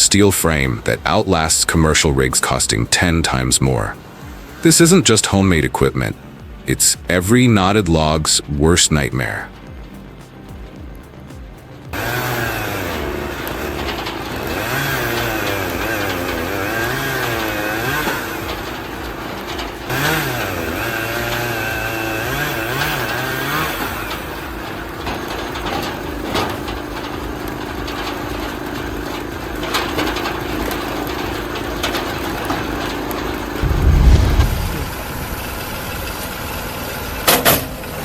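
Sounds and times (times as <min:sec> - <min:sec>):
log splitter engine running: 0:00.0 - 0:38.0.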